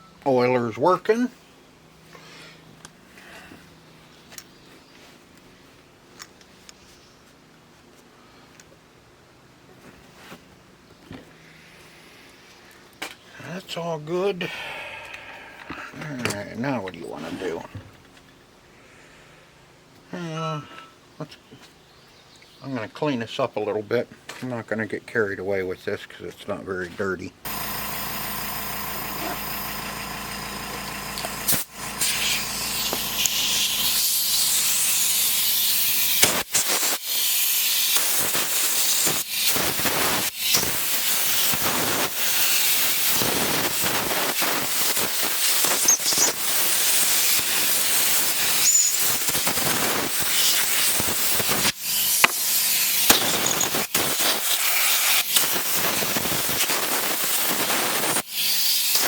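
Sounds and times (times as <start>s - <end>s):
compressed air hissing from blow gun: 27.5s - 59.0s.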